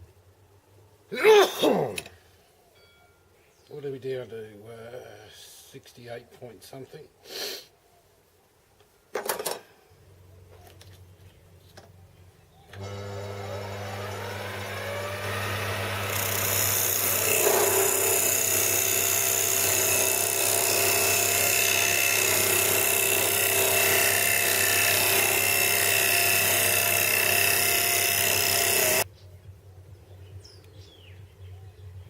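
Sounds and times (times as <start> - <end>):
power tool cutting wood: 12.7 - 29.1.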